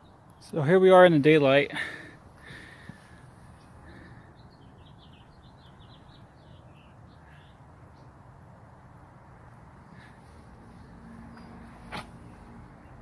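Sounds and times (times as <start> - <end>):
bird chirping: 3.4 - 13.0.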